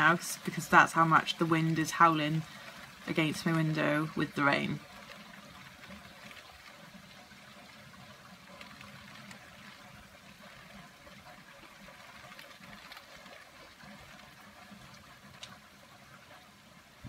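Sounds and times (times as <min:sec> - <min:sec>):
rain hitting a window: 0:00.0 - 0:17.0.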